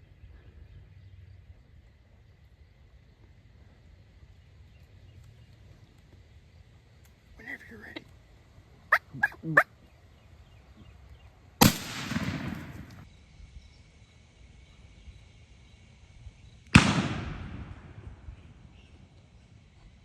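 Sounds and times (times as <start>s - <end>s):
shotgun blasts: 11.6s - 13.0s, 16.8s - 18.4s.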